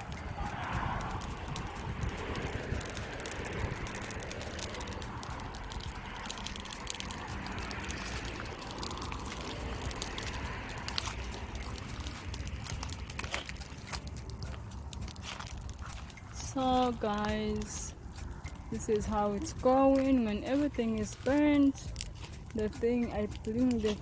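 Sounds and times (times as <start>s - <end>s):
burning grass crackling and popping: 0.0s - 24.0s
low rumble: 0.0s - 24.0s.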